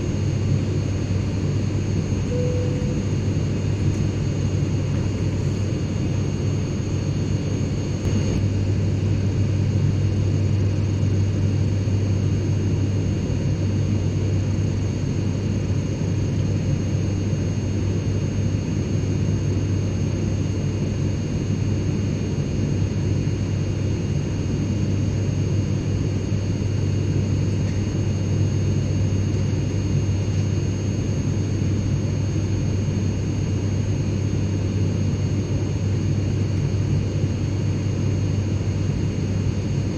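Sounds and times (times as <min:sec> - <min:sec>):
airplane cabin rumble: 0:00.0 - 0:13.9
faint high-pitched tones: 0:02.3 - 0:03.1.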